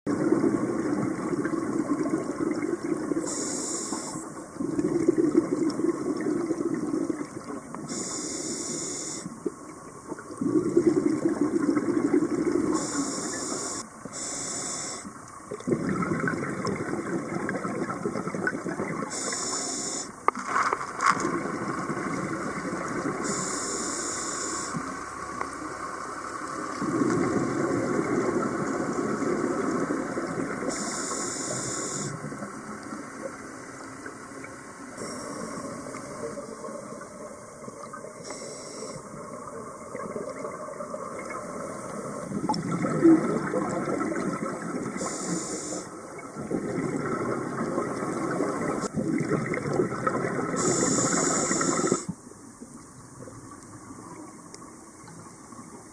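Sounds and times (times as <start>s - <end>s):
underwater bubbling: 0.1s - 55.9s
regulator hiss on inhale: 3.2s - 4.4s, 7.8s - 9.4s, 12.7s - 15.2s, 19.1s - 20.3s, 23.2s - 25.0s, 30.6s - 32.4s, 35.0s - 36.4s, 38.2s - 39.2s, 45.0s - 46.1s, 50.6s - 52.2s.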